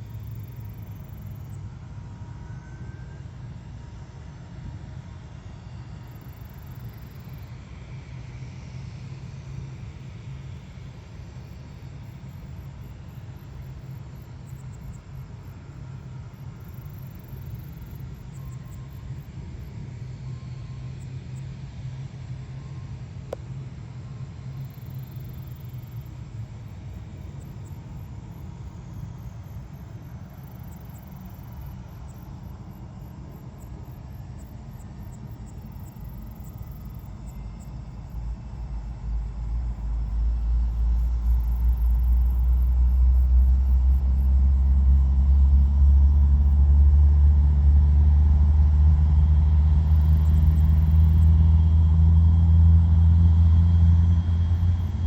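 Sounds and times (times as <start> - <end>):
low engine rumble: 14.8 - 55.0.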